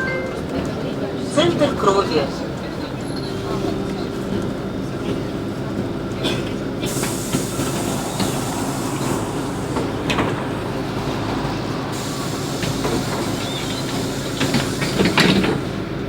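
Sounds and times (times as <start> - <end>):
bus engine drone: 0.0 - 16.0.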